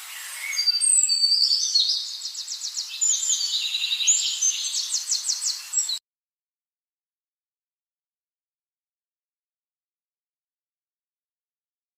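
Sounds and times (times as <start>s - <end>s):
songbird singing trills: 0.0s - 6.0s.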